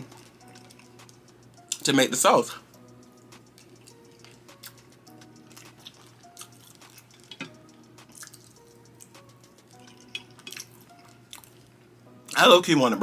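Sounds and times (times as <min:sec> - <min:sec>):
faint background music: 0:00.0 - 0:13.0
wet chewing and mouth clicks: 0:03.4 - 0:11.7.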